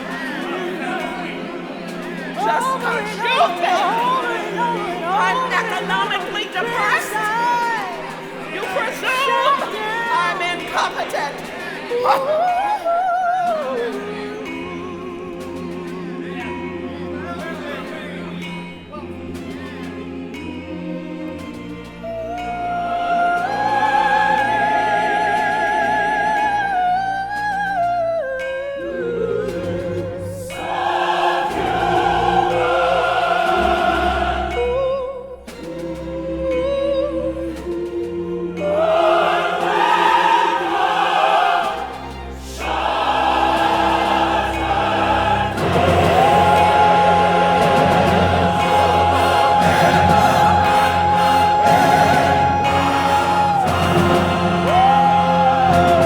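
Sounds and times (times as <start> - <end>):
operatic voices singing: 0.0 - 56.0
orchestra and choir: 0.0 - 56.0.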